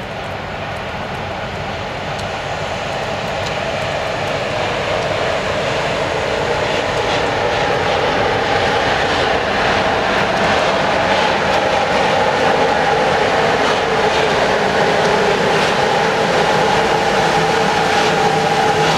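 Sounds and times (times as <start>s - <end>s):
train approaching: 0.0s - 18.9s.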